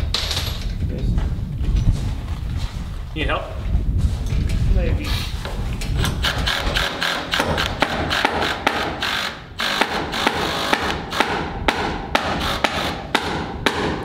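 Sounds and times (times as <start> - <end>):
hammer striking nails into wood: 6.5 - 14.0.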